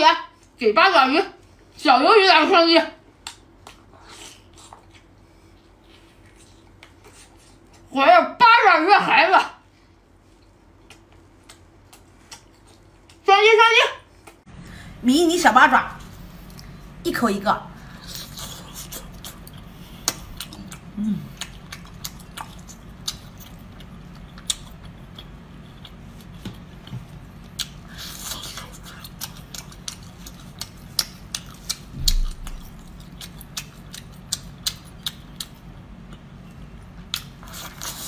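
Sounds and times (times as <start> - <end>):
steady low hum: 0.0 - 38.0
wet chewing clicks and smacks: 18.7 - 38.0.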